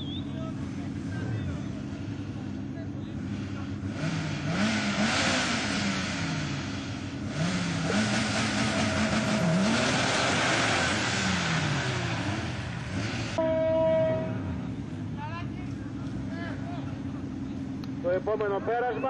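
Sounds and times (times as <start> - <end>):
drag racing cars revving: 0.0 - 13.4, 14.5 - 19.0
race cars accelerating through gears: 3.4 - 13.4.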